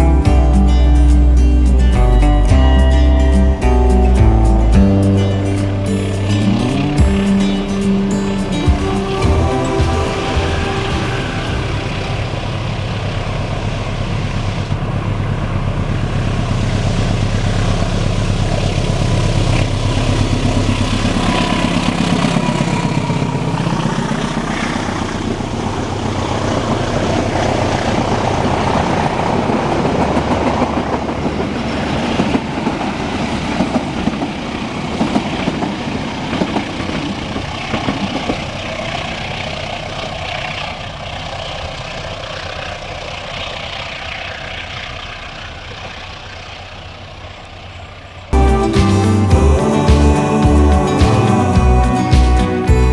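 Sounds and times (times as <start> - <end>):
diesel locomotive engine drone: 0.0 - 52.9
train wheels clacking on rails: 26.3 - 39.4.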